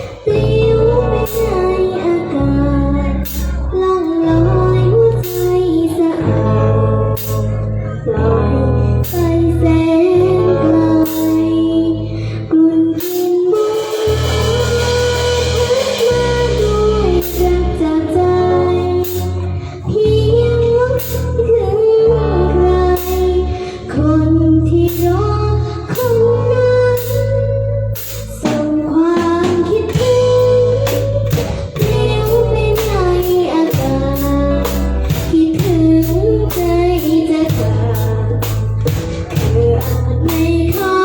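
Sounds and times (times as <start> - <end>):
band playing a song: 0.0 - 4.6, 5.2 - 7.6, 13.0 - 18.2, 28.0 - 41.0
bass notes: 0.0 - 41.0
woman singing: 0.0 - 41.0
cymbal hit: 13.2 - 17.6.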